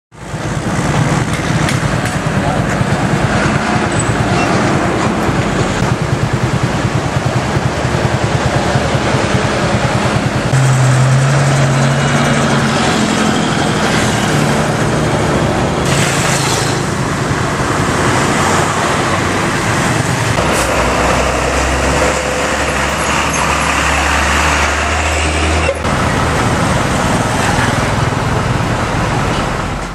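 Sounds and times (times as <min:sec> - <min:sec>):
heavy trucks passing: 0:00.2 - 0:29.9.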